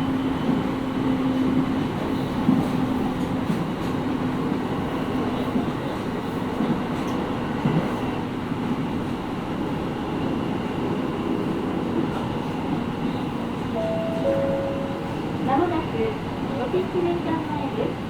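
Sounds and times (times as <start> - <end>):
train wheels rumbling on rail: 0.0 - 13.7.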